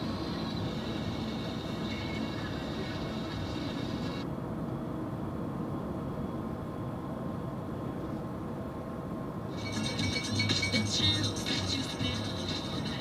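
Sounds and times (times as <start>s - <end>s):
hiss: 0.0s - 4.2s
road and engine rumble: 0.0s - 4.3s, 8.8s - 13.0s.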